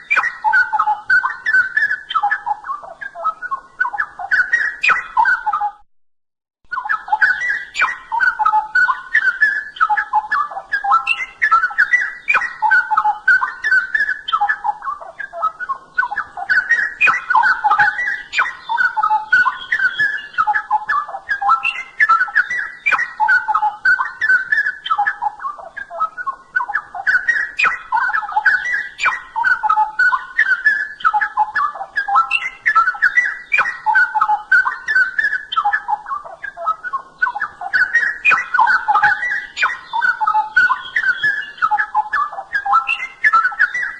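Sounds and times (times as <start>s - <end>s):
bird singing whistled notes: 0.0s - 5.8s, 6.7s - 43.9s.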